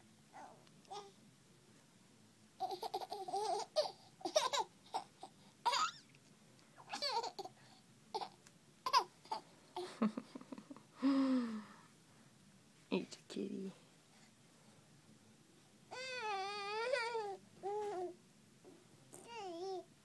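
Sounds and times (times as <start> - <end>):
young child laughing and babbling: 19.1 - 19.9.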